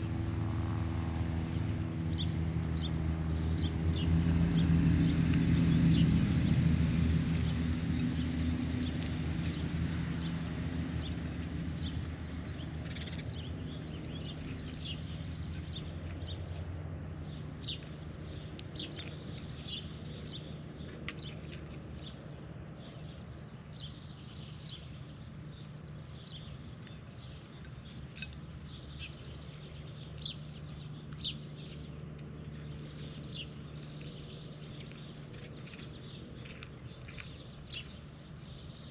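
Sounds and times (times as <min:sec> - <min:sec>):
passing vehicle engine: 0:00.0 - 0:23.4
birds chirping: 0:01.3 - 0:38.9.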